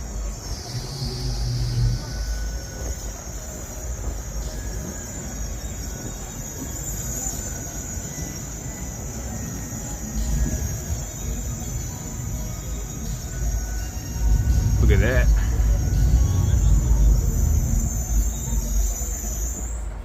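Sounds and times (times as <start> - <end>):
insects buzzing: 0.0 - 20.0
wind rumbling on microphone: 8.5 - 20.0
low hum: 9.8 - 20.0.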